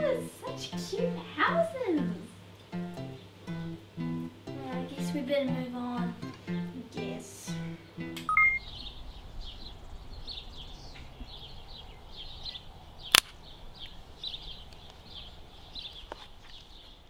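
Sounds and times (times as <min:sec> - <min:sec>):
guitar music: 0:00.0 - 0:08.6
two-note tone: 0:06.2 - 0:08.6
bird chirping: 0:07.5 - 0:17.0
sharp click: 0:13.1 - 0:13.4.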